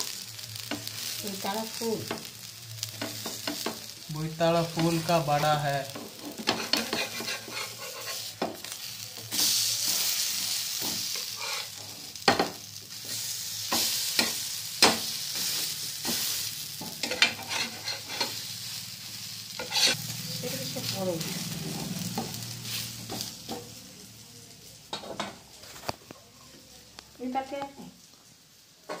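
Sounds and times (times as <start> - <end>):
fritters sizzling in oil: 0.0 - 29.0
metal spatula scraping a pan: 4.8 - 8.7, 9.3 - 12.0, 15.3 - 18.8, 19.5 - 20.0.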